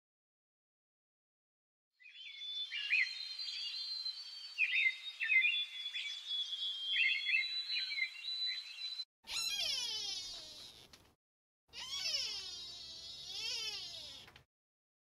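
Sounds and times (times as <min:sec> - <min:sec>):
small birds chirping: 0:02.0 - 0:10.9.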